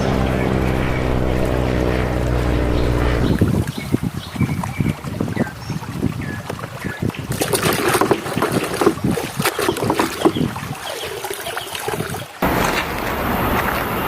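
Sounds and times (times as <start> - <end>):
steady rushing noise: 0.0 - 4.0
water splashing: 0.0 - 14.0.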